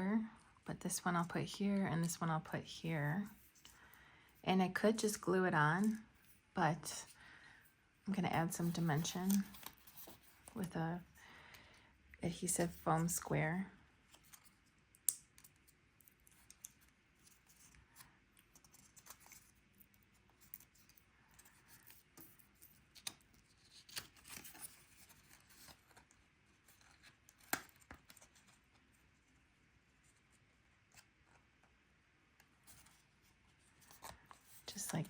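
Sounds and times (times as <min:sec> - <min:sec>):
card stock rustling and clicking: 0:14.1 - 0:28.9.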